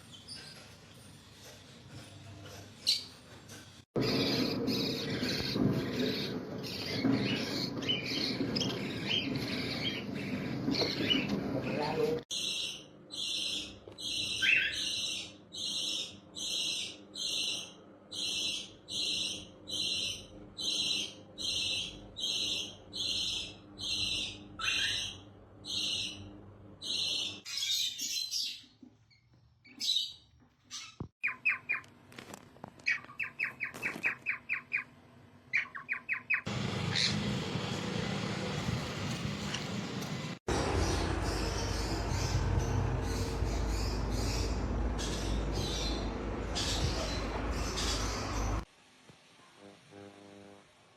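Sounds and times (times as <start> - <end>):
bird chirping: 4.0 - 31.9, 32.8 - 34.9, 35.5 - 37.3, 40.5 - 48.6.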